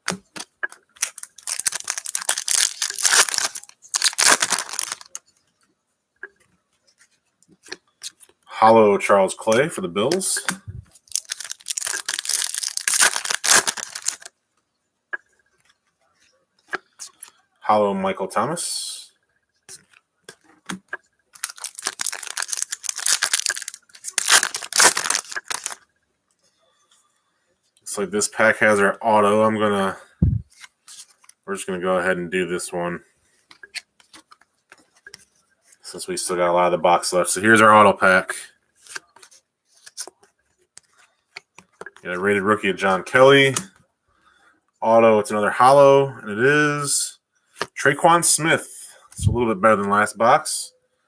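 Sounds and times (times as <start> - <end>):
wrapper crinkling and tearing: 0.0 - 5.2, 11.0 - 14.3, 21.3 - 25.8.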